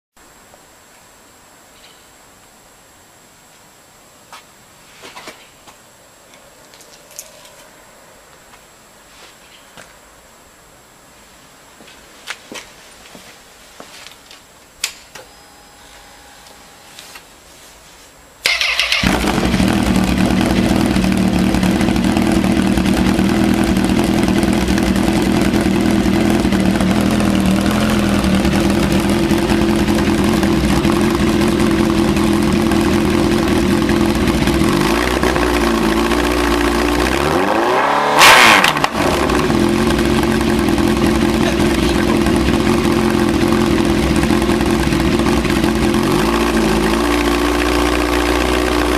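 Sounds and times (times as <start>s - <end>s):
motorcycle engine revving: 18.4s - 48.9s
motorcycle engine starting and idling: 18.4s - 48.9s.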